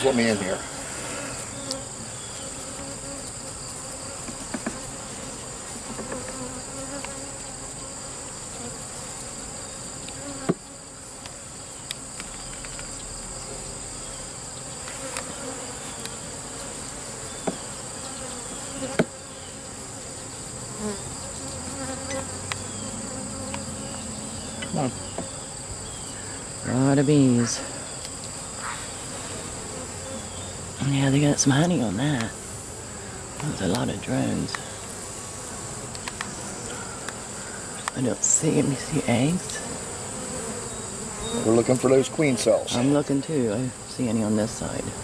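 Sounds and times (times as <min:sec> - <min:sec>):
bees buzzing: 0:00.0 - 0:45.0.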